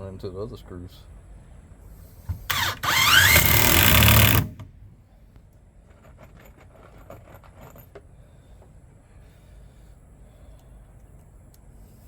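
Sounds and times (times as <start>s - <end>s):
power drill driving screw: 2.4s - 4.7s.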